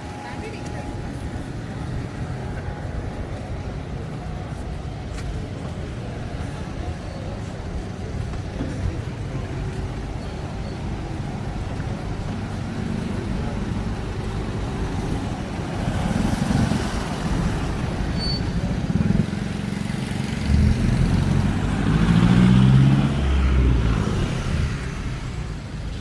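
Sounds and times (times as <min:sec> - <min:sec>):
road traffic: 0:00.0 - 0:26.0
vehicle engine passing close: 0:14.8 - 0:25.5.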